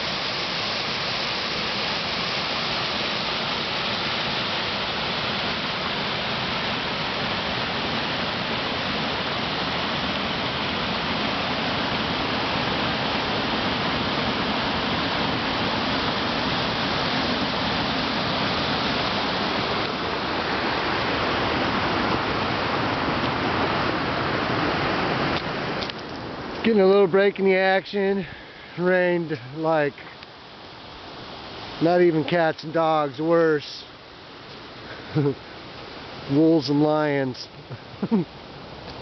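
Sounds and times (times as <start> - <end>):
fast-flowing river water rushing: 0.0 - 39.0.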